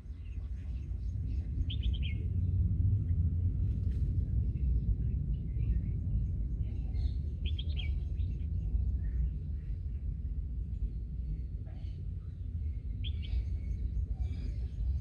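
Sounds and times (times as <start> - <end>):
low rumble: 0.0 - 15.0
birds chirping: 0.1 - 2.3, 12.3 - 15.0.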